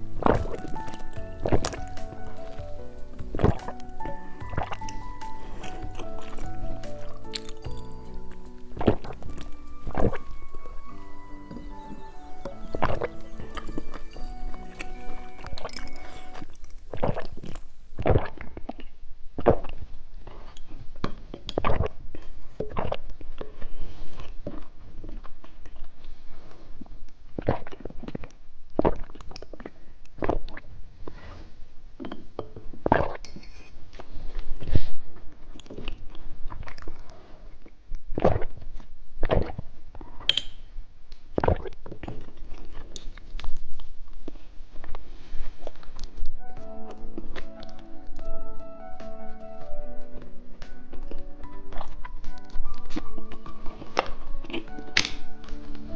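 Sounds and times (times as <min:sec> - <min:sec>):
chewing snacks: 0:00.0 - 0:25.9, 0:35.5 - 0:37.5, 0:41.3 - 0:46.3, 0:50.1 - 0:55.9
wet mouth clicks and smacks: 0:03.3 - 0:10.2, 0:14.8 - 0:20.6, 0:39.2 - 0:39.6, 0:41.3 - 0:43.8.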